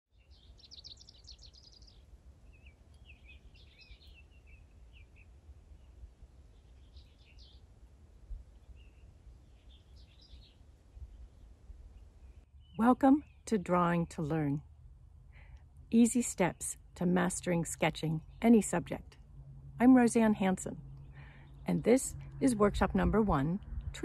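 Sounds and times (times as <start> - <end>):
small bird chirping: 0.1 - 7.7, 8.5 - 14.0
low steady rumble: 10.6 - 24.0.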